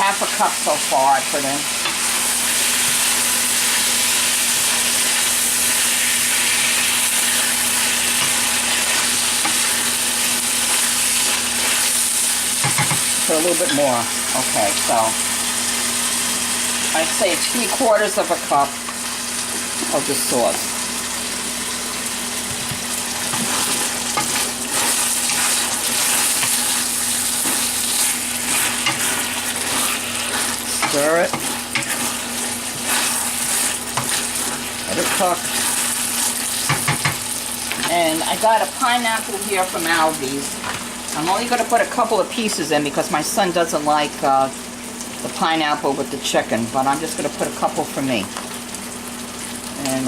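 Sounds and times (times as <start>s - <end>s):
food sizzling in a wok: 0.0s - 50.0s
stir-fry being stirred: 0.1s - 15.1s, 17.0s - 39.2s.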